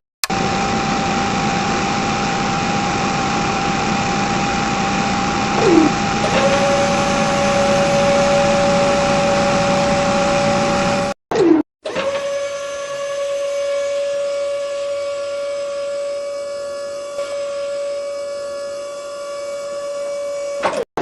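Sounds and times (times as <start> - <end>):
lower steady whine: 0.3 - 11.2
small motors whining: 0.3 - 11.2, 11.9 - 20.8.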